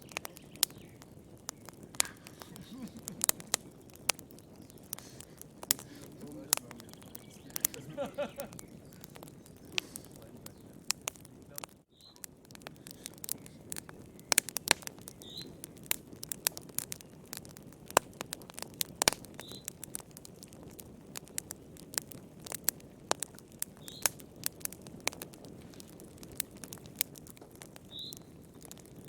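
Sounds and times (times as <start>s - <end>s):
wood fire crackling: 0.0s - 29.0s
faint high chirp: 15.2s - 15.6s.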